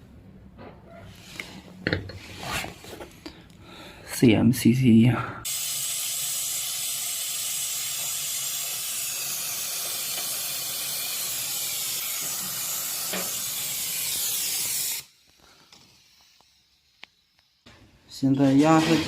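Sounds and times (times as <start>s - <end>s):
gas hissing from a vent: 5.4s - 19.0s.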